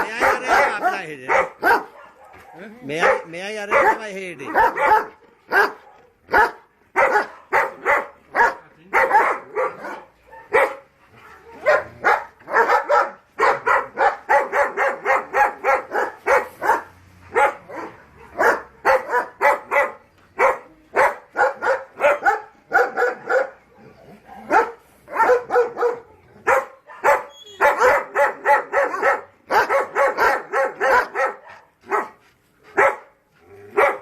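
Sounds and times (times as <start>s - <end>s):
dogs barking: 0.0s - 34.0s.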